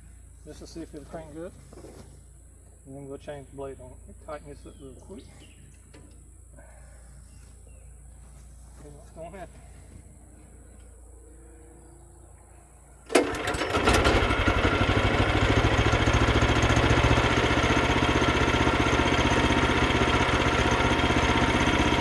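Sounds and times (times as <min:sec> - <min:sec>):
small gasoline engine running: 0:13.1 - 0:22.0.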